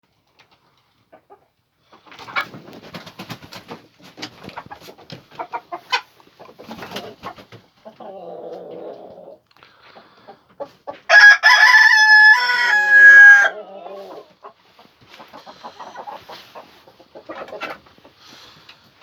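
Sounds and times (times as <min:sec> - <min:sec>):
chickens clucking: 0:00.2 - 0:11.3, 0:12.4 - 0:19.0
rooster crowing loudly: 0:11.1 - 0:13.7.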